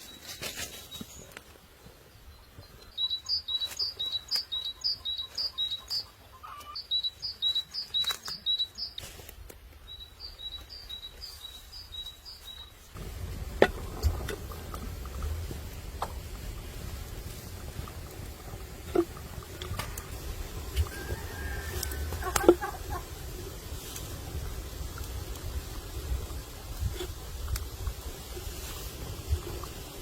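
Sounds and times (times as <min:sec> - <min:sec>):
bird chirping: 0:02.3 - 0:09.0, 0:09.9 - 0:13.0
wind rumble on microphone: 0:13.0 - 0:30.0.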